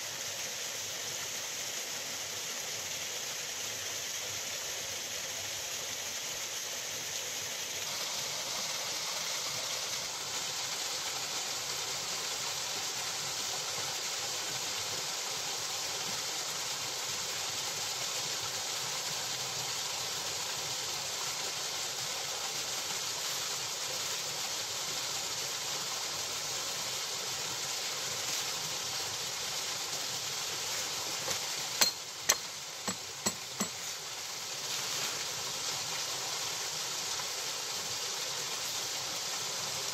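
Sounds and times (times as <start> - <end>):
water rushing over rocks: 27.6 - 39.9.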